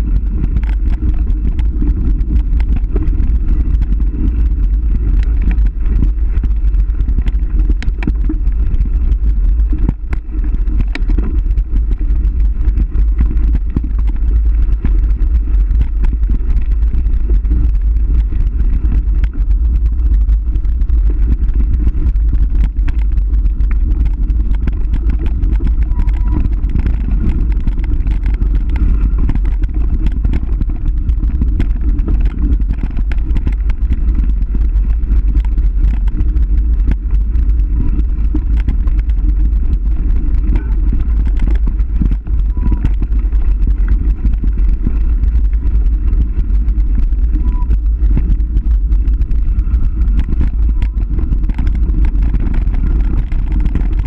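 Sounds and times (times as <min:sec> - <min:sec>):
small clicks and rattles: 0:00.0 - 0:54.0
wind buffeting microphone: 0:00.0 - 0:54.0.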